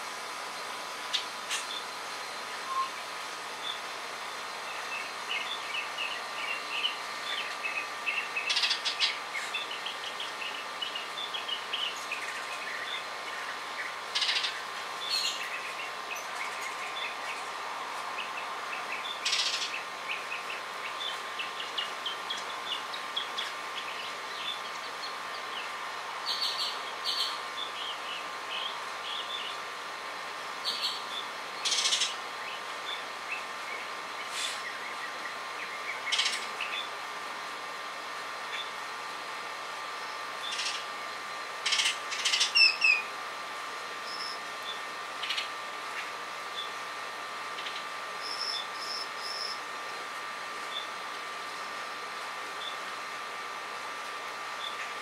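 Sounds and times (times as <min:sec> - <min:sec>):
harsh rasping bird calls: 0:02.7 - 0:29.7, 0:30.6 - 0:37.0, 0:40.0 - 0:40.9, 0:41.6 - 0:43.1, 0:47.5 - 0:49.6.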